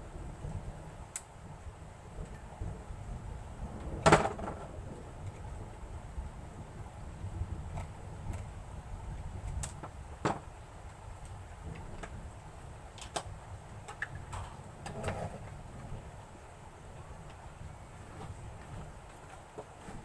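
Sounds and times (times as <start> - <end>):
low steady rumble: 0.0 - 20.0
plastic parts clicking and knocking: 4.0 - 4.7, 9.5 - 10.5.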